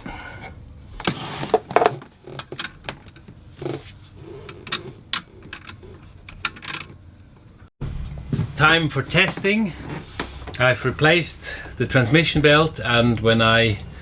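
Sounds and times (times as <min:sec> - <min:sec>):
hand tools and metal parts clinking: 0:01.6 - 0:07.0.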